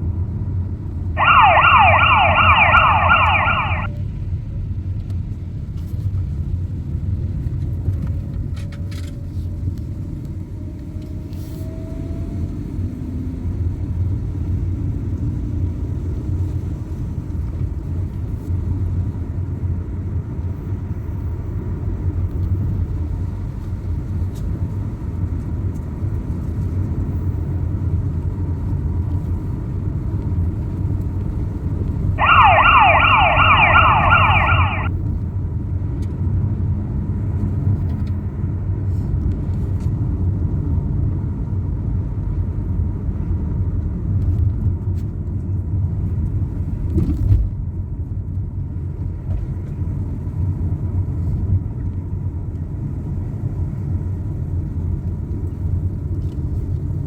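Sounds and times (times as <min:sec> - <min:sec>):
car engine and road noise: 0:01.2 - 0:03.9, 0:32.2 - 0:34.9
fire engine siren yelps: 0:01.2 - 0:03.9, 0:32.2 - 0:34.9.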